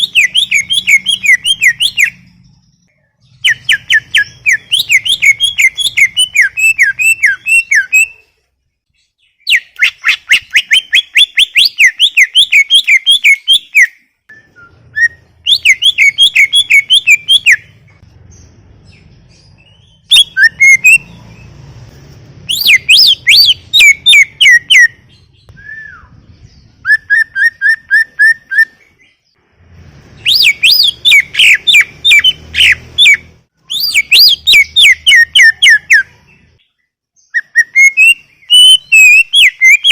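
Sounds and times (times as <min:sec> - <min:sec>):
bird singing whistled notes: 0:00.0 - 0:08.3, 0:09.0 - 0:21.6, 0:22.4 - 0:29.4, 0:30.1 - 0:39.9.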